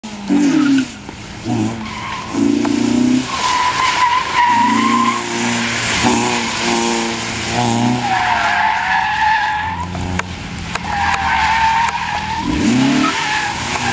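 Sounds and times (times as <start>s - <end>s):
car engine revving hard: 0.2s - 8.4s, 11.3s - 13.9s
tyres squealing: 0.3s - 7.2s, 8.0s - 9.9s.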